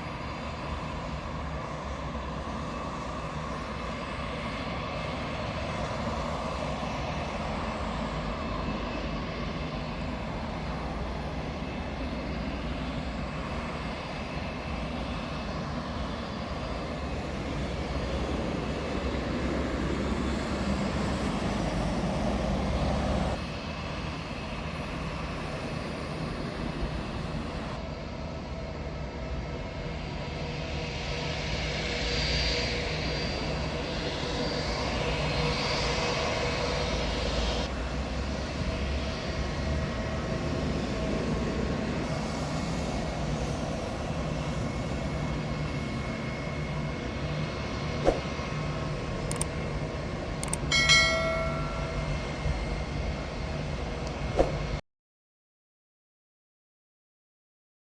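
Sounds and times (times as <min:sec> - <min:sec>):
jet engines running with whine: 0:00.0 - 0:54.8
sharp click: 0:49.3 - 0:49.5, 0:50.4 - 0:50.6.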